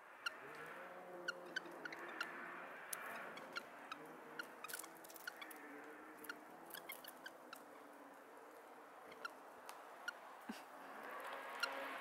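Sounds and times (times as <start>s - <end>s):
small birds ticking and chipping: 0.0s - 12.0s.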